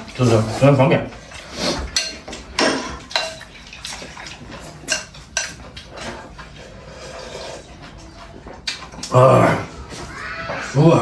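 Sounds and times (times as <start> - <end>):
chopsticks and spoons clinking bowls: 0.0 - 10.0
slurping noodles: 0.4 - 2.0, 6.1 - 8.0.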